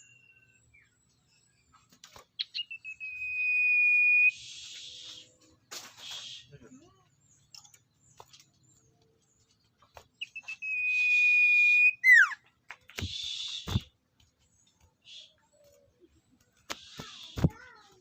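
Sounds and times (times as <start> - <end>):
bird whistling call: 2.4 - 5.4, 6.0 - 6.5, 10.2 - 12.4, 13.0 - 13.8.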